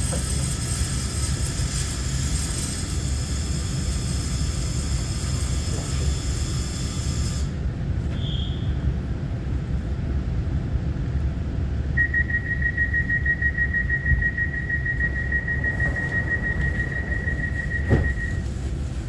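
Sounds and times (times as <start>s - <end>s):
train wheels rumbling on track: 0.0s - 19.0s
high whistling tone: 12.0s - 18.7s.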